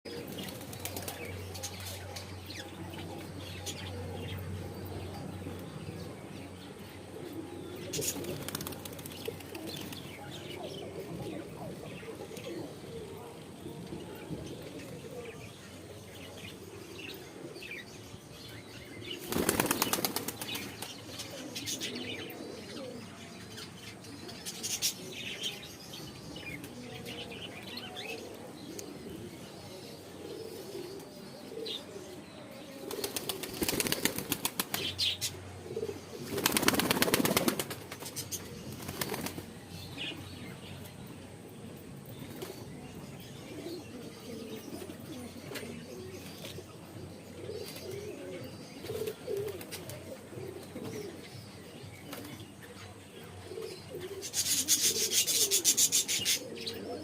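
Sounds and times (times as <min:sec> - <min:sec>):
birds flapping wings: 0:08.0 - 0:10.0, 0:19.2 - 0:21.0, 0:32.9 - 0:35.0, 0:36.3 - 0:39.5.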